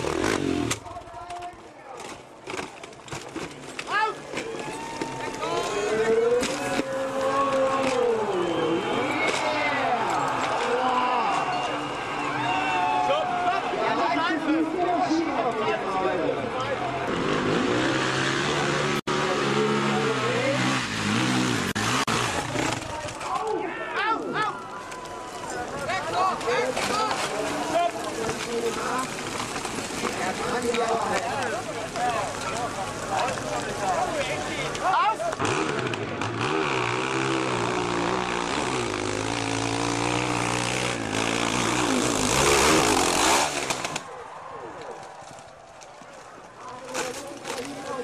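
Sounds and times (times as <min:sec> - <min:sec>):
motorcycle engine revving: 0:00.0 - 0:00.9, 0:17.0 - 0:23.0, 0:35.2 - 0:44.1.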